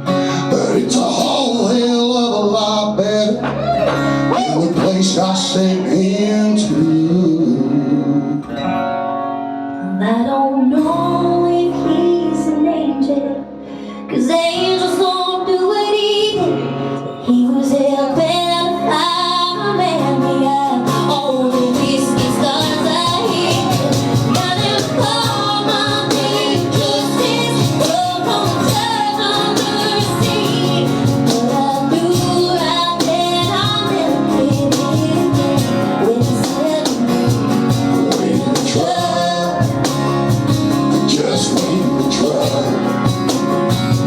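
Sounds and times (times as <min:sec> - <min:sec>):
acoustic guitar: 0:00.0 - 0:44.0
woman singing: 0:09.8 - 0:13.5, 0:14.1 - 0:39.9.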